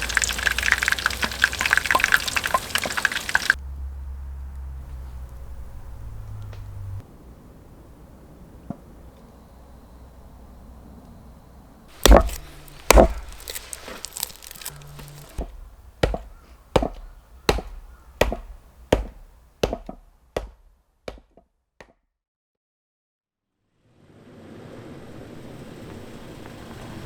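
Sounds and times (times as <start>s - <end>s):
sharp chopping blows: 11.9s - 21.4s.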